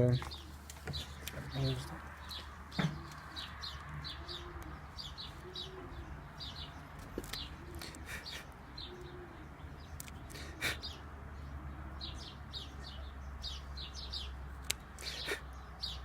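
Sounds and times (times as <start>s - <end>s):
pigeons cooing: 0.2s - 14.3s, 14.9s - 16.0s
sharp clicks: 10.0s - 10.4s.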